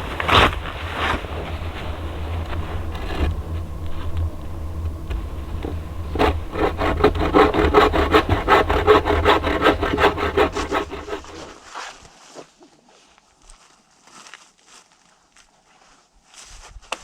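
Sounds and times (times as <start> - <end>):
hand saw cutting wood: 0.0 - 11.6.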